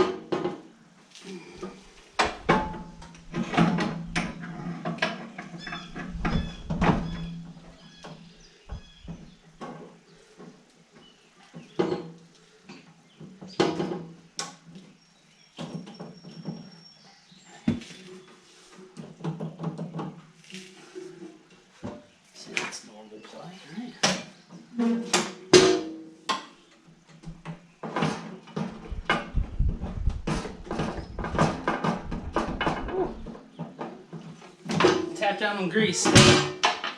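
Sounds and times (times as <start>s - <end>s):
metal clanks and knocks: 1.6s - 10.5s, 24.0s - 35.2s, 36.0s - 36.9s.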